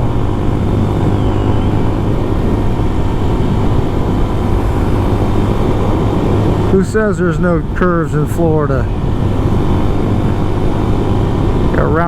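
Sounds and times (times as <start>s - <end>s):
motorcycle engine running: 0.0s - 12.0s
wind rushing over microphone: 0.0s - 12.0s.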